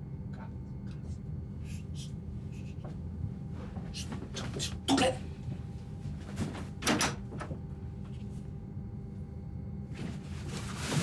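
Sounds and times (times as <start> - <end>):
steady low hum: 0.0 - 11.0
handling knocks and rustles: 10.0 - 11.0.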